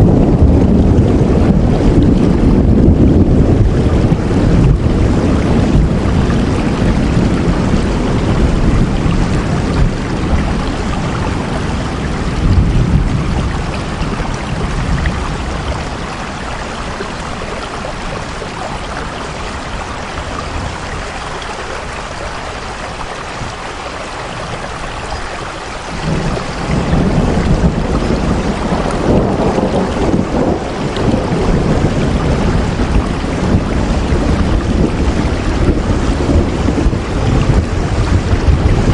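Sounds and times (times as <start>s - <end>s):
deep low rumble: 0.0s - 20.8s
rain falling: 0.0s - 38.9s.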